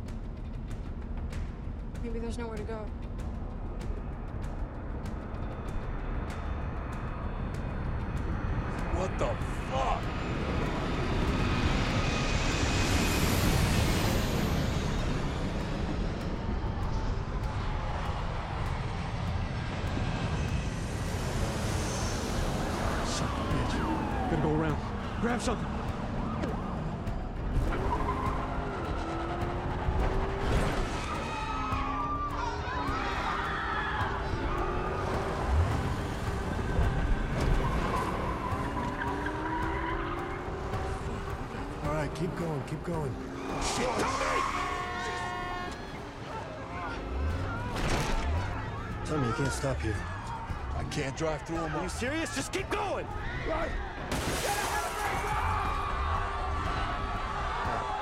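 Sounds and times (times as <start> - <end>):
jet airliner passing overhead: 10.0 - 25.6.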